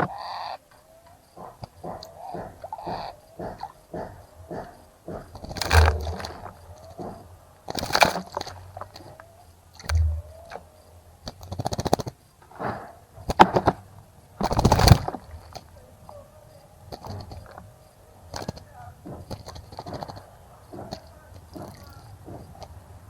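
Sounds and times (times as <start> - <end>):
birds splashing in water: 1.9 - 12.1.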